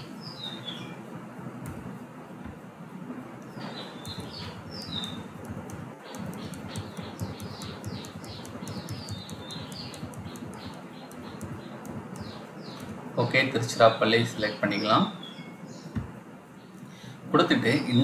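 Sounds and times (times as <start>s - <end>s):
small bird chirping: 0.0s - 1.0s, 3.4s - 13.3s
low background noise: 0.0s - 18.0s.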